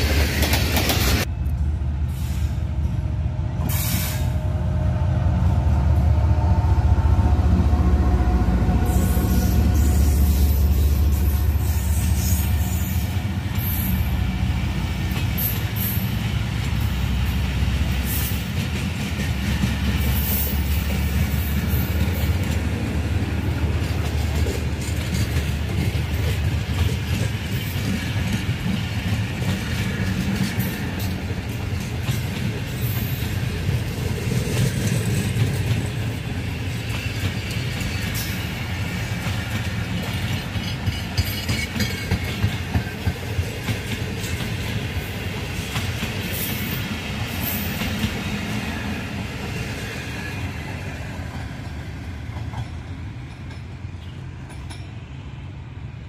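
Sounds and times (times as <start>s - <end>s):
wheels clacking over rail joints: 0.0s - 1.3s, 8.8s - 49.6s
train wheels rumbling: 0.0s - 56.0s.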